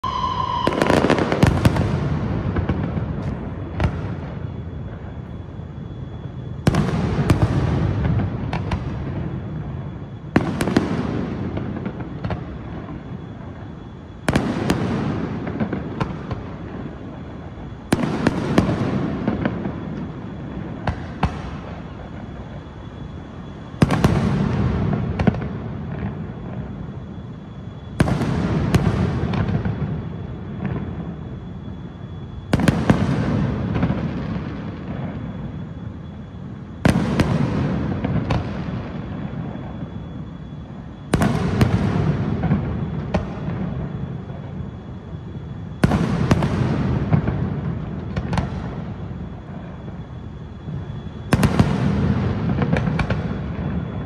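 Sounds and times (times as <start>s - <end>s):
single firework pops: 0.1s - 4.2s, 20.8s - 21.8s, 36.8s - 38.7s, 41.1s - 43.6s, 48.0s - 48.8s, 51.3s - 53.4s.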